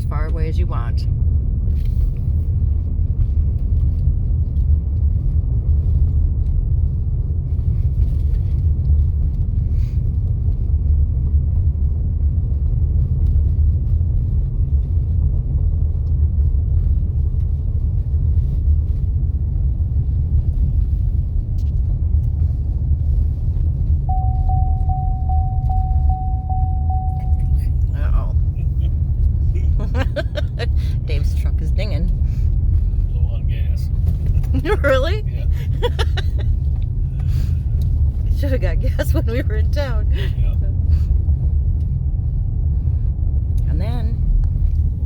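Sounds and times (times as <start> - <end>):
vehicle driving on dirt road: 0.0 - 45.0
steady high tone: 24.1 - 28.5.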